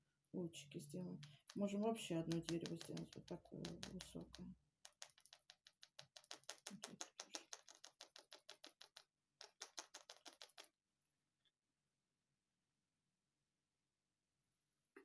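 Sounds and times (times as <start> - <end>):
paintbrush dabbing: 1.2 - 10.7.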